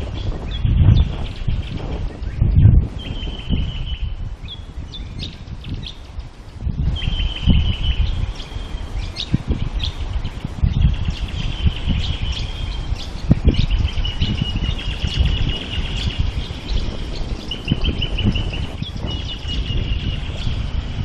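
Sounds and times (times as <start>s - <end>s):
birds trilling: 0.0s - 6.1s, 6.8s - 20.8s.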